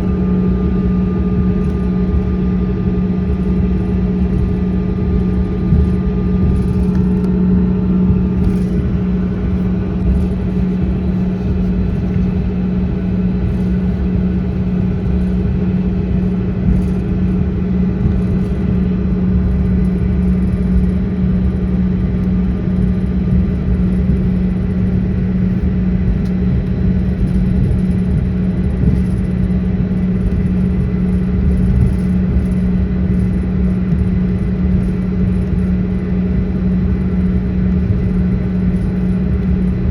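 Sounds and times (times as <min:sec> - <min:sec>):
airliner cabin hum and rumble: 0:00.0 - 0:39.9.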